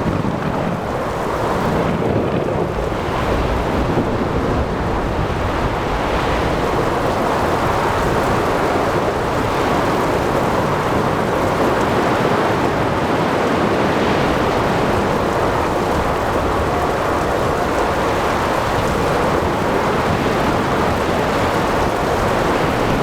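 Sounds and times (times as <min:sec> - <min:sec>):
ocean waves breaking: 0:00.0 - 0:23.0
wind: 0:00.0 - 0:23.0
rain falling: 0:00.1 - 0:23.0.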